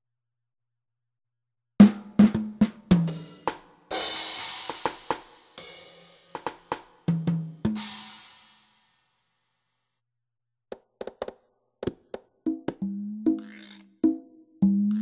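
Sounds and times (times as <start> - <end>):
cymbal crash: 3.9 - 6.5, 7.8 - 9.0.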